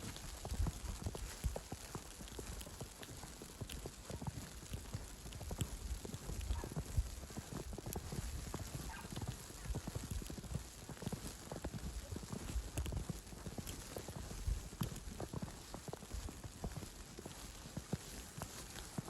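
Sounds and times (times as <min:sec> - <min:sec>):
falling snow hiss: 0:00.0 - 0:19.0
footsteps crunching on snow: 0:00.0 - 0:19.0
wind: 0:00.0 - 0:19.0.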